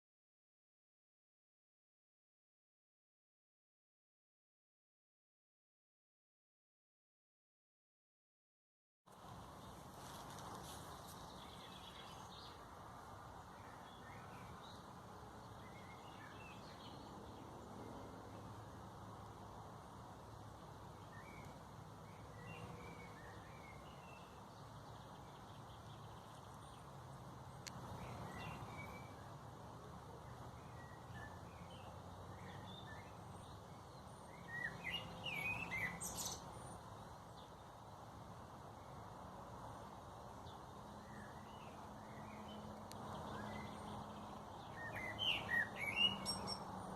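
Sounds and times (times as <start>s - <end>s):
small songbirds chirping: 9.1s - 46.9s
faint bird chirps: 44.7s - 46.7s.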